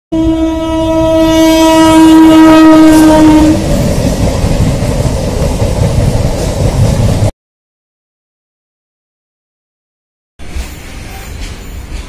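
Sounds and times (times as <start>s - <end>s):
train horn blast: 0.1s - 3.8s
train rumbling on track: 0.1s - 7.3s, 10.4s - 12.0s.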